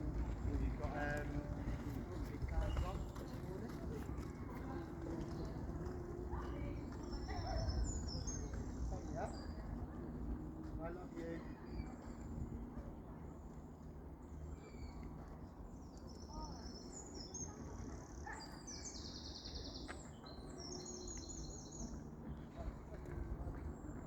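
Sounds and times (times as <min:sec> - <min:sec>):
low outdoor rumble: 0:00.0 - 0:18.3
small birds chirping: 0:00.0 - 0:24.0.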